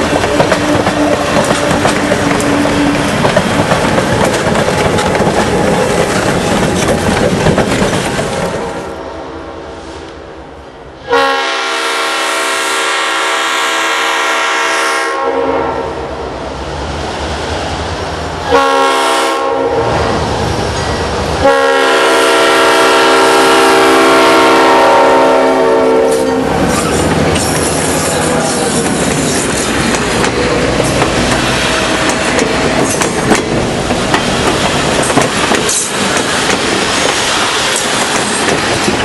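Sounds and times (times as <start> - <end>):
moving train rumble and clatter: 0.0 - 39.0
locomotive air horn: 11.0 - 16.1, 18.4 - 19.9, 21.4 - 26.6.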